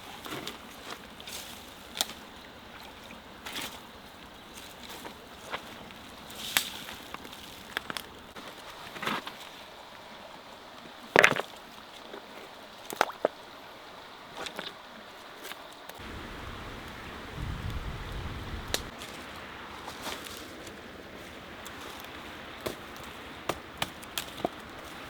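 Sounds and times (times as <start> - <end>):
low rumble: 16.0 - 18.9
steady hiss: 16.0 - 25.0.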